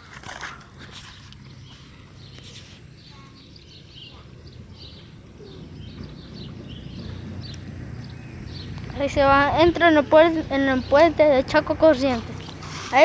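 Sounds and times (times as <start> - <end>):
birds chirping: 0.0 - 13.0
low rumbling noise: 2.9 - 13.0.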